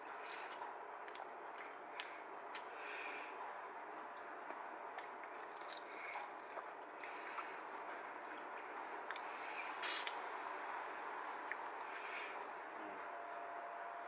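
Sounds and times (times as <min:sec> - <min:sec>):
wet chewing: 0:00.0 - 0:02.7, 0:04.1 - 0:08.5
soft squishes: 0:00.0 - 0:02.8, 0:04.1 - 0:10.2.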